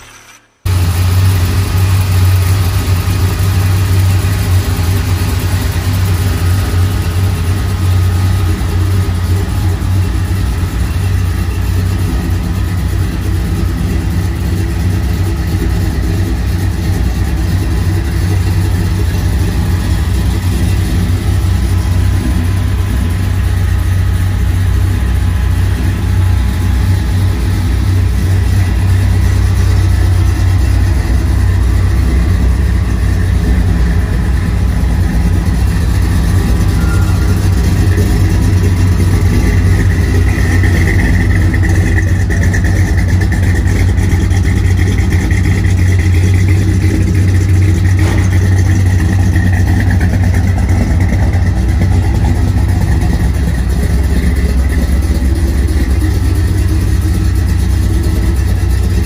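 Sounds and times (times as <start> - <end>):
engine idling with low rumble: 0.0 - 59.0.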